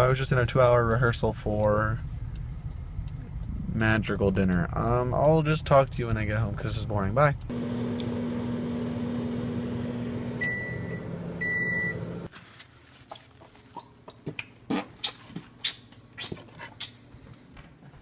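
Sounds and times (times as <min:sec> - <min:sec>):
car interior hum: 0:00.4 - 0:12.3.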